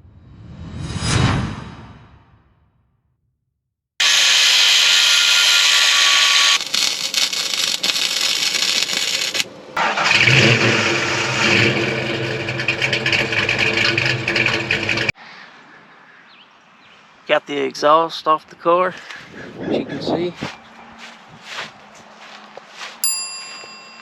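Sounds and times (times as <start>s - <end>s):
car engine starting and revving: 9.8s - 15.1s.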